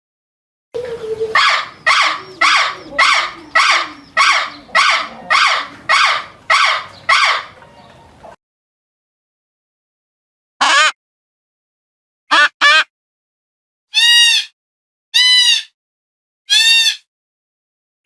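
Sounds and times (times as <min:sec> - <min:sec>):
bird honking call: 0:00.8 - 0:08.4.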